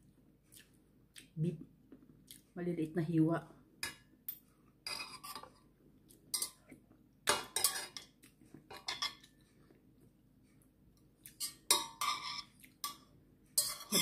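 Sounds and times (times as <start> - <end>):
metal utensils scraping a pot: 4.9 - 5.6, 7.3 - 8.1, 11.4 - 13.0, 13.6 - 14.0.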